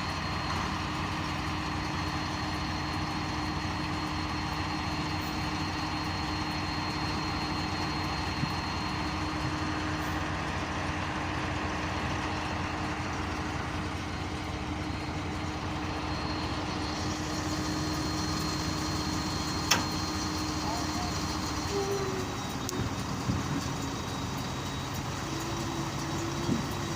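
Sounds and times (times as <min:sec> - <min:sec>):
thin high whine: 0:00.0 - 0:10.3, 0:13.3 - 0:26.9
diesel engine idling: 0:00.0 - 0:26.9.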